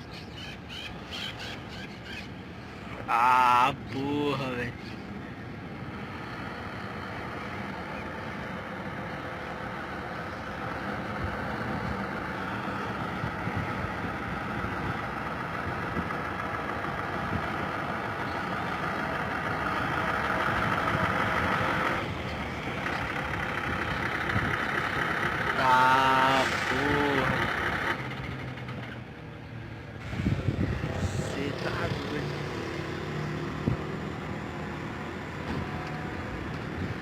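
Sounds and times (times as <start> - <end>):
heavy truck engine and tyres: 0.0 - 37.0.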